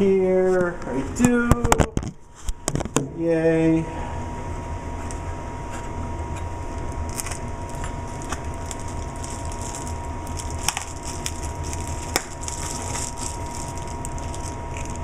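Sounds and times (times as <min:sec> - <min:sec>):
steady low hum: 0:00.0 - 0:15.0
plastic crackling and snapping: 0:06.9 - 0:15.0
razor slitting plastic packaging: 0:07.1 - 0:15.0.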